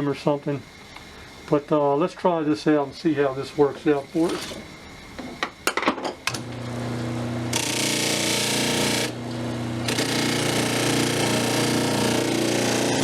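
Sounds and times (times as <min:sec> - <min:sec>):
power tool motor humming: 0:06.4 - 0:13.0.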